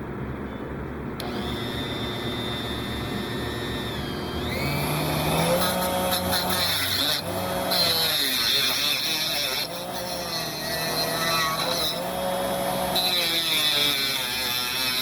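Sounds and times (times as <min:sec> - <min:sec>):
rotary tool whining: 0:01.2 - 0:15.0.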